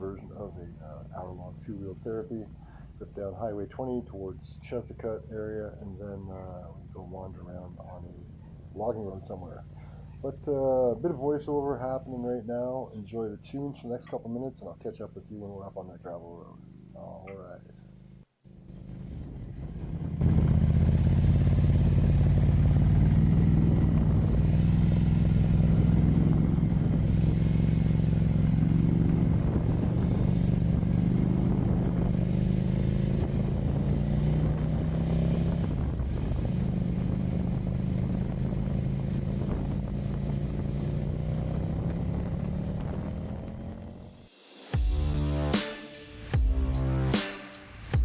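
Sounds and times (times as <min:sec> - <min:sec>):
motorcycle engine running: 0:16.4 - 0:45.6.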